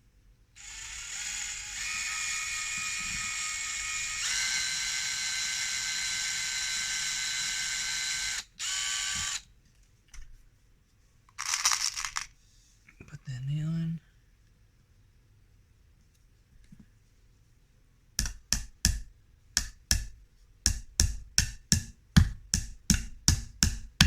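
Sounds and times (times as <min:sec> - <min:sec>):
power drill drilling wood: 0:00.6 - 0:09.4.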